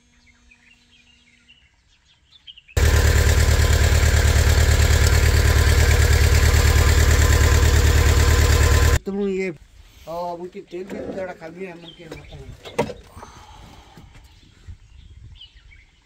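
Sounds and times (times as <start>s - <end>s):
loader engine running: 2.8s - 9.0s.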